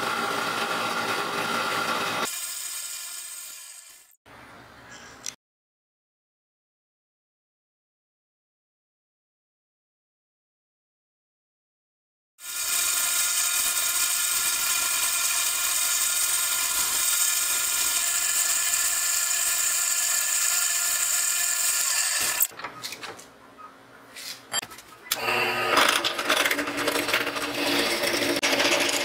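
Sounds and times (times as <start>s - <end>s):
drill press boring into metal: 12.4s - 22.5s, 25.1s - 29.0s
metal lathe whining: 12.5s - 22.5s, 25.1s - 29.0s.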